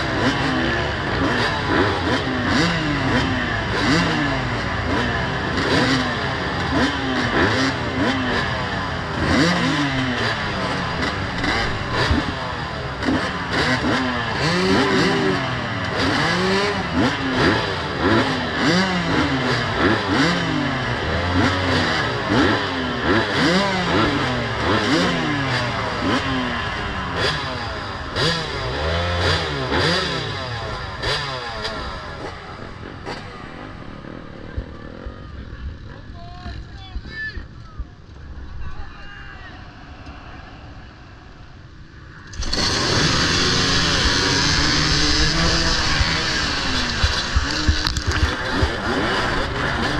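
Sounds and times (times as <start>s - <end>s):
motorcycles revving and accelerating: 0.0s - 36.8s, 41.6s - 49.9s.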